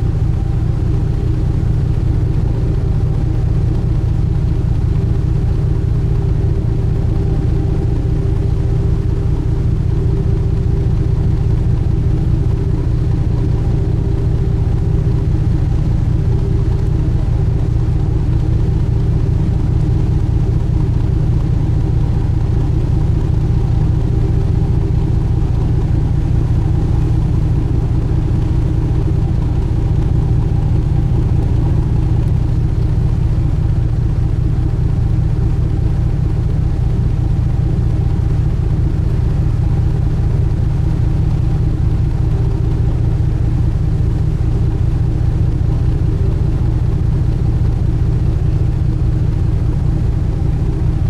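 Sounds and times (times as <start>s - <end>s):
boat engine droning: 0.0s - 51.0s.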